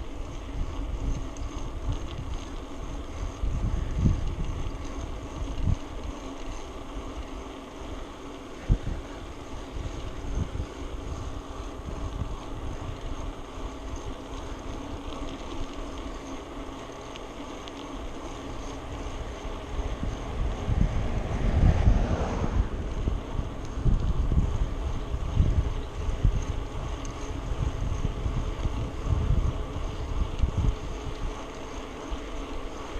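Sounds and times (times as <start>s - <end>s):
wind buffeting microphone: 0.0s - 6.1s, 8.6s - 15.1s, 18.0s - 32.9s
low rumble: 18.9s - 25.3s.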